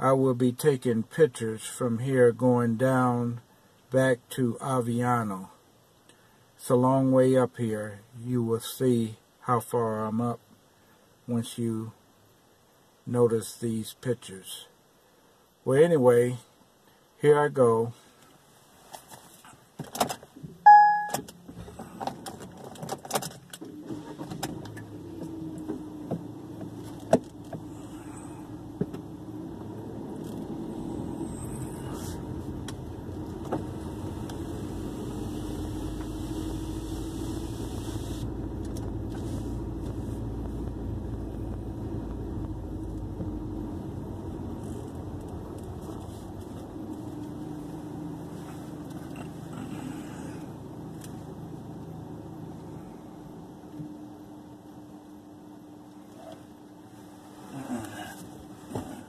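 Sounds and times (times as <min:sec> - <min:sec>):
car keys jangling in ignition: 0:19.9 - 0:21.4
car engine starting and running: 0:19.9 - 0:59.0
short beep: 0:20.6 - 0:21.3.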